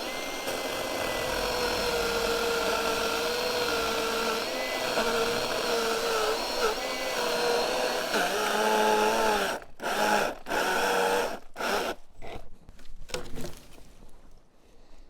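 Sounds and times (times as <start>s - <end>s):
chainsaw cutting log: 0.0s - 12.0s.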